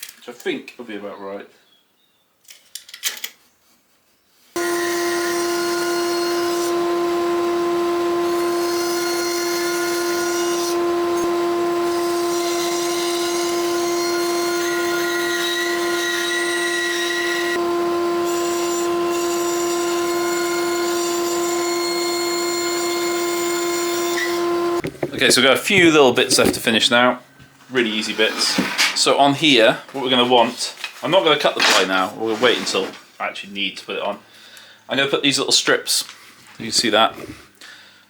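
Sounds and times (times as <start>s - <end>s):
power tool cutting wood: 4.6s - 24.8s.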